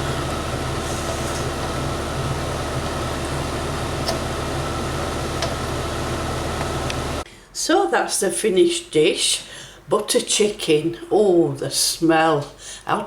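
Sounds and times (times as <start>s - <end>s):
mechanical hum with low drone: 0.0s - 7.2s.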